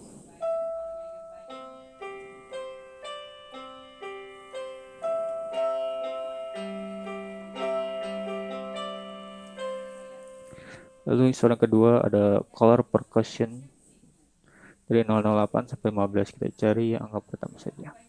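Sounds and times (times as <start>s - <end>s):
electronic keyboard piano melody: 0.3s - 12.0s
held low keyboard note: 0.3s - 12.0s.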